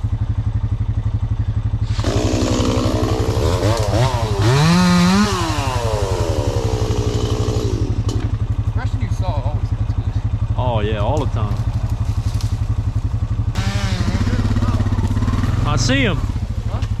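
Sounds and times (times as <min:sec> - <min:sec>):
atv engine idling: 0:00.0 - 0:17.0
small engine revving: 0:01.7 - 0:08.3, 0:13.5 - 0:17.0.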